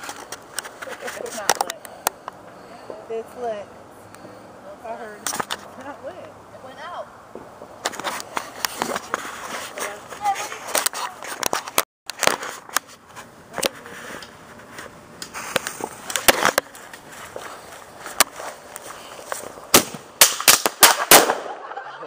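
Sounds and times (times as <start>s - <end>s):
firecrackers popping: 15.2s - 21.7s.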